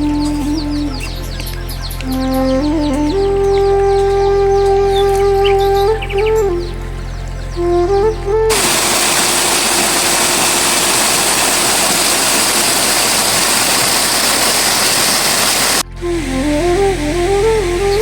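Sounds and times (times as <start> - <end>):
flute music: 0.0 - 10.6, 15.8 - 18.0
rushing water: 8.5 - 15.8.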